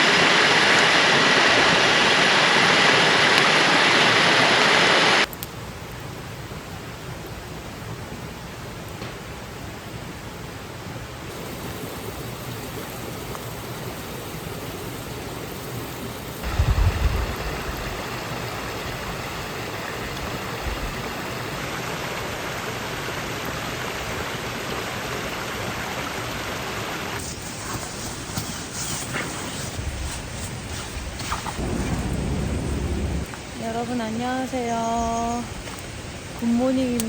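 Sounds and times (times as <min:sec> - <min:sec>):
stream water rushing: 0:00.0 - 0:05.3, 0:10.8 - 0:33.8
short low thump: 0:31.4 - 0:33.3.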